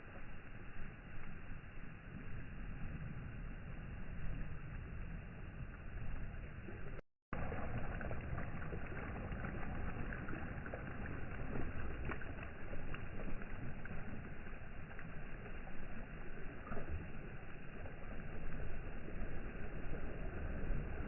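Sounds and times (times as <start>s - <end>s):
sea water washing against shore: 2.1s - 21.0s
small water splashes: 5.5s - 21.0s.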